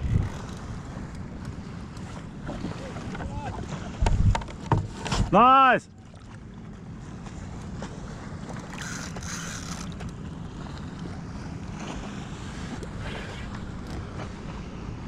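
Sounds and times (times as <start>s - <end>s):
wind on microphone: 0.0s - 5.3s
water sloshing against kayak hull: 0.0s - 15.0s.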